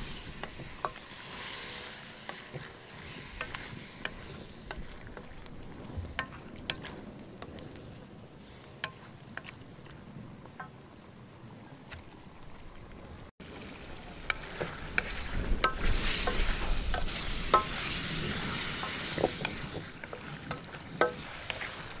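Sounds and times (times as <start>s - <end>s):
spatula scraping iron pan: 0.0s - 9.5s, 14.3s - 22.0s
frying sizzle: 0.0s - 9.7s, 13.4s - 22.0s.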